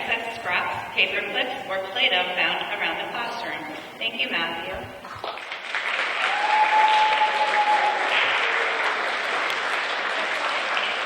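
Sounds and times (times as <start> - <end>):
audience clapping: 5.1 - 11.0.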